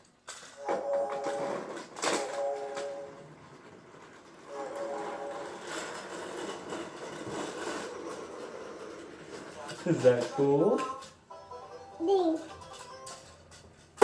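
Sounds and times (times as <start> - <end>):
train sound effect: 0.6 - 9.6.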